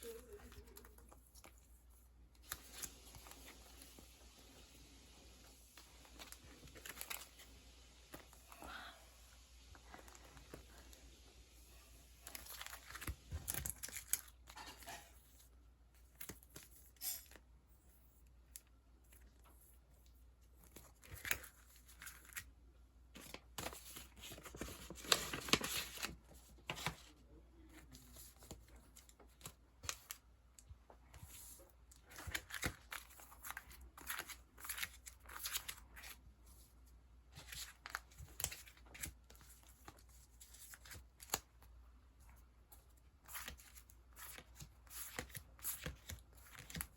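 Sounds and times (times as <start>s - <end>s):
packaging rustling and crinkling: 5.8s - 8.4s, 12.2s - 15.2s, 23.2s - 27.2s.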